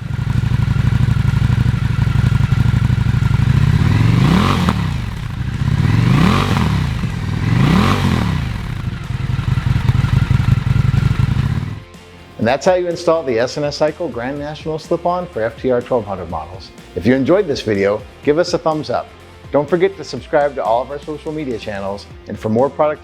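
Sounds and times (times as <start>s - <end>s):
motorcycle engine idling and revving: 0.0s - 12.2s.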